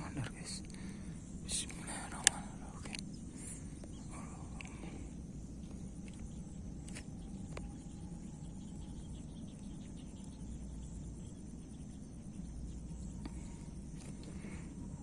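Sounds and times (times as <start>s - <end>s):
insects chirring: 0.0s - 15.0s
low rumble: 0.0s - 15.0s
faint clicks: 1.6s - 3.2s, 3.8s - 4.9s.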